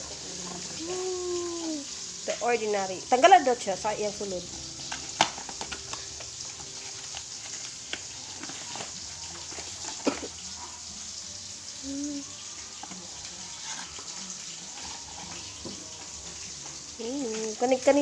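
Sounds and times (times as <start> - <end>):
plastic packaging crinkling: 4.8 - 10.7.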